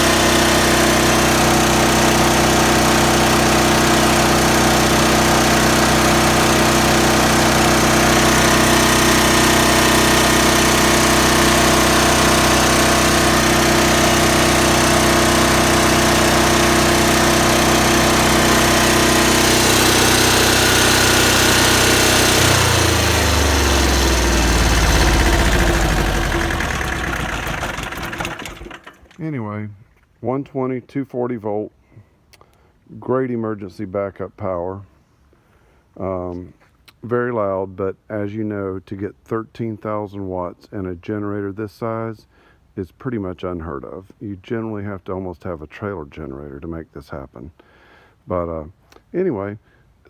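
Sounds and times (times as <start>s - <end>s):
diesel generator running: 0.0s - 29.3s.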